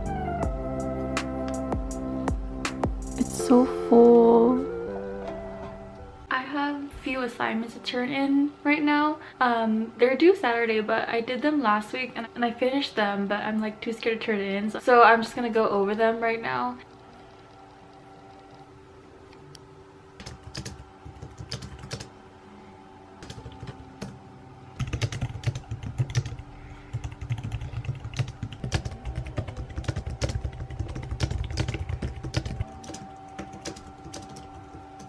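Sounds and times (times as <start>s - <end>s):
typing on computer keyboard: 20.2s - 22.1s, 24.8s - 35.0s.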